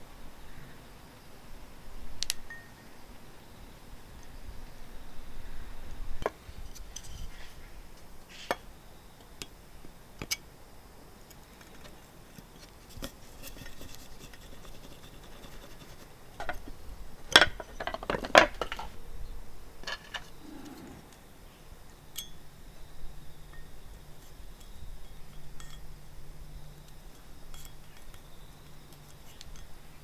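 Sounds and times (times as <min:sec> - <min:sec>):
clicks and knocks of small objects: 0:16.4 - 0:19.0, 0:19.8 - 0:20.3.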